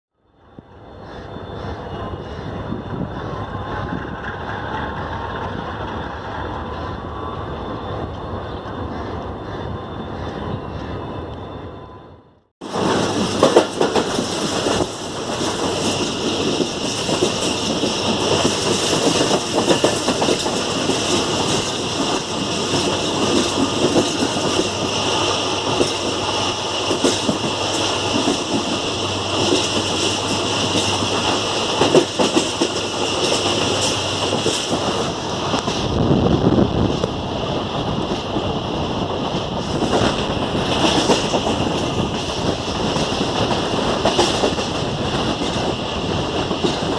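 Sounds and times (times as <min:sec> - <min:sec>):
train rumbling at speed: 0:00.3 - 0:46.9
wheels clattering over rail joints: 0:12.6 - 0:35.9.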